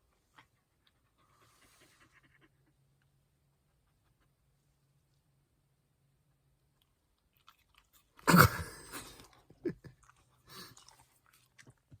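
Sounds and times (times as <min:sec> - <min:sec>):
dog lip-smacking and chewing: 0:06.8 - 0:08.2, 0:09.1 - 0:12.0.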